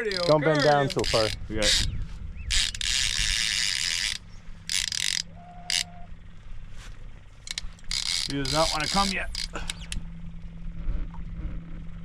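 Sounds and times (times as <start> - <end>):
fishing reel drag buzzing: 0.0 - 1.9, 2.5 - 6.1, 7.4 - 10.1
low steady hum: 0.0 - 12.0.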